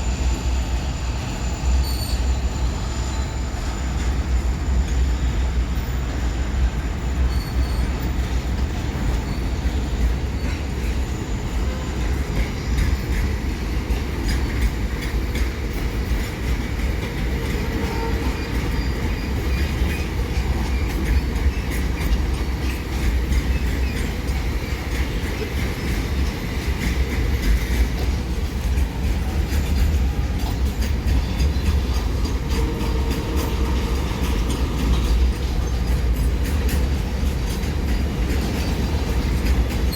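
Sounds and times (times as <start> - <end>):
freight train wheels rumbling: 0.0 - 39.9
faint wheel squeal: 0.2 - 6.2, 7.2 - 8.3
clickety-clack over rail joints: 1.2 - 39.9.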